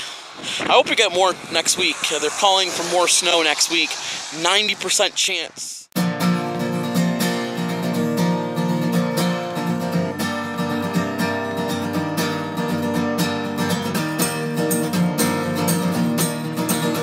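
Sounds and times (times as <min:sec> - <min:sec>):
strummed acoustic guitar: 0:06.0 - 0:17.0.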